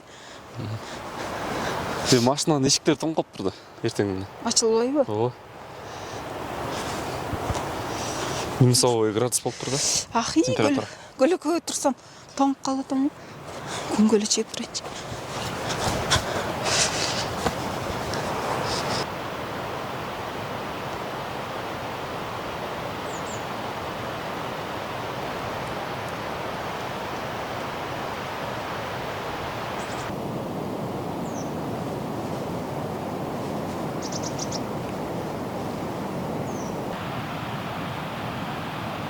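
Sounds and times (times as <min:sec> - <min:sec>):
steady outdoor rushing noise: 0:13.2 - 0:39.0
patter of clicks: 0:14.5 - 0:19.0.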